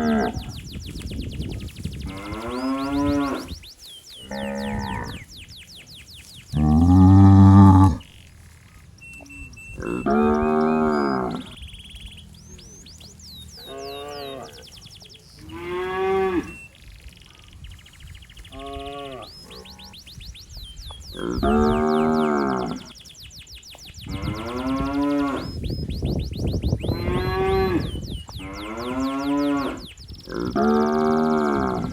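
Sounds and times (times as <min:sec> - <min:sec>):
calf mooing: 0:09.8 - 0:11.5.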